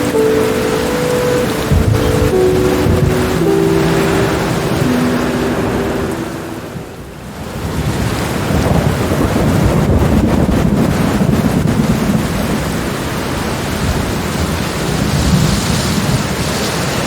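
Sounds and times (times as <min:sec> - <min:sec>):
heavy rain: 0:00.0 - 0:17.0
deep roll of thunder: 0:01.6 - 0:05.2, 0:07.6 - 0:16.3.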